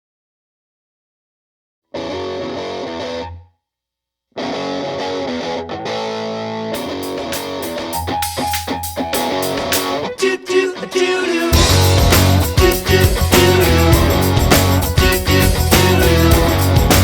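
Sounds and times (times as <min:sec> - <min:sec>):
distorted electric guitar: 0:02.0 - 0:03.4, 0:04.4 - 0:17.0
sharp percussive hits: 0:06.8 - 0:10.1, 0:11.6 - 0:17.0.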